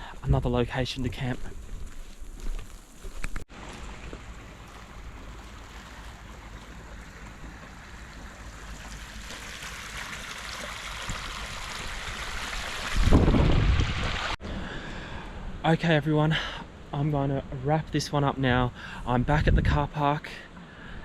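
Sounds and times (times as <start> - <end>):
rushing wind: 11.0 - 15.6
gust buffeting microphone: 12.0 - 14.4.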